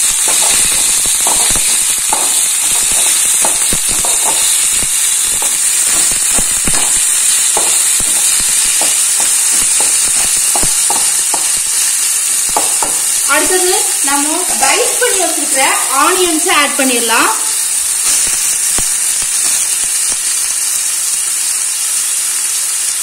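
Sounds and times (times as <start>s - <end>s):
metal spatula scraping a pan: 0.0s - 11.7s
paste sizzling in hot oil: 0.0s - 23.0s.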